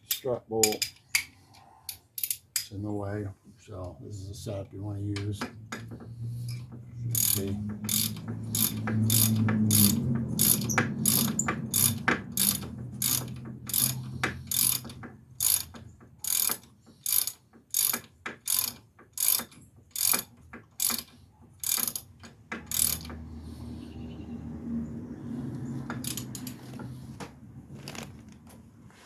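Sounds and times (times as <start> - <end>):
ratchet wrench clicking: 2.2 - 2.7, 6.5 - 23.2, 25.9 - 26.8.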